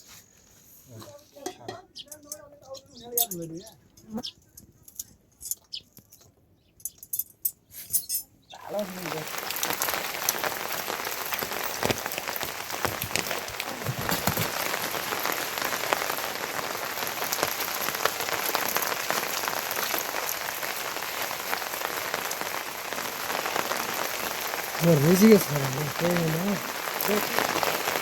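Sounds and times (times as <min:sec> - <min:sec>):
heavy rain hissing: 0:08.6 - 0:28.0
raindrop ticks: 0:08.7 - 0:28.0.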